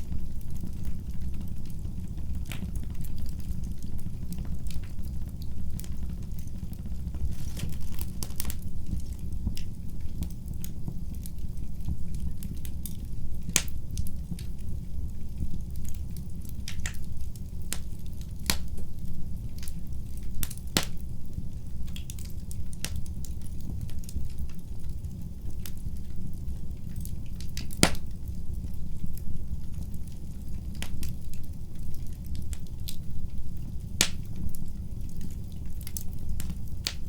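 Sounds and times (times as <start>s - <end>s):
wood fire crackling and popping: 0.0s - 37.0s.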